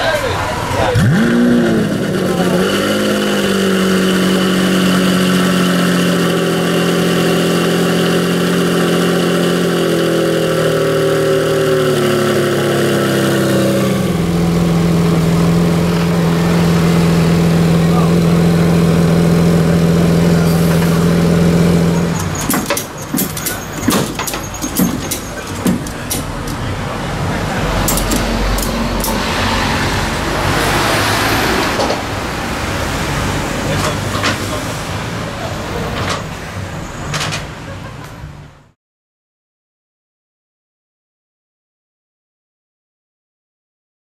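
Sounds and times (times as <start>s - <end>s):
car engine idling: 0.0s - 31.3s
scattered clicks and knocks: 22.2s - 26.6s, 27.8s - 29.2s, 37.1s - 38.3s.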